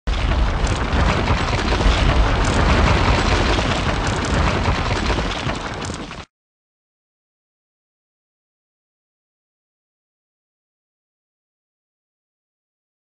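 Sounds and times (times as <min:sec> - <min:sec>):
wall breaking apart crash: 0:00.1 - 0:06.3.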